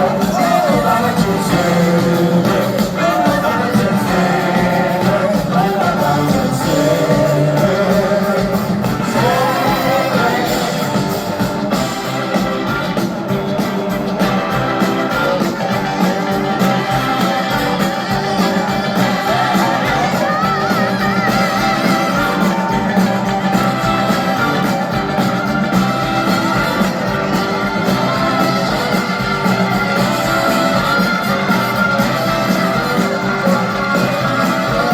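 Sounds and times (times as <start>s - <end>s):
live rock band playing: 0.0s - 34.9s
wavering lead line: 0.0s - 34.9s.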